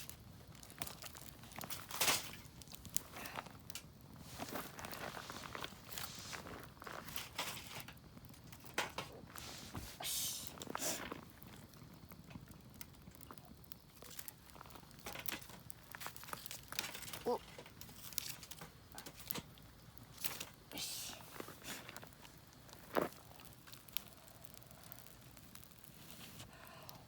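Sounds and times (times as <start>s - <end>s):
rustling and crinkling: 0.0s - 26.9s
small clicks and knocks: 14.0s - 19.6s.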